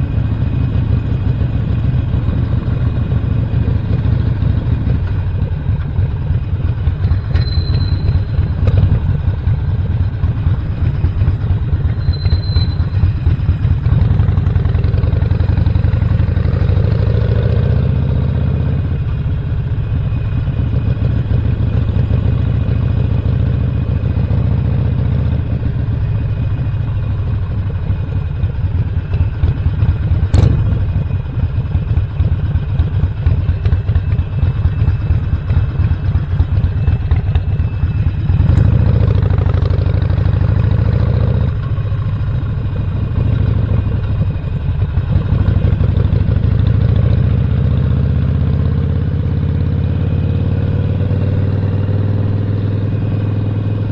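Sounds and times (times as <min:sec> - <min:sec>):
motorcycle engine running: 0:00.0 - 0:53.9
sharp click: 0:30.4 - 0:30.8.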